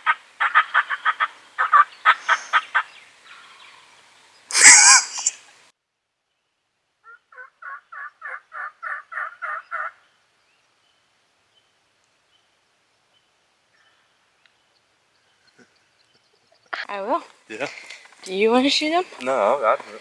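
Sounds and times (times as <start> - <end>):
turkey calling: 0.0 - 5.5, 7.0 - 10.1.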